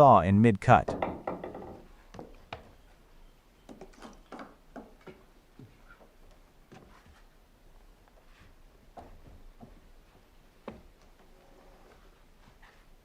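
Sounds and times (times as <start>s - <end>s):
faint irregular clicks and knocks: 3.6s - 7.2s.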